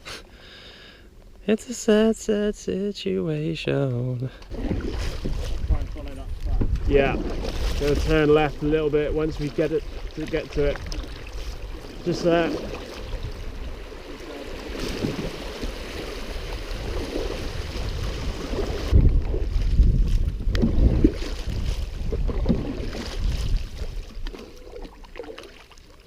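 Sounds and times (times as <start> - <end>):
canoe paddling water sounds: 3.5 - 26.0
wind buffeting microphone: 4.5 - 24.4.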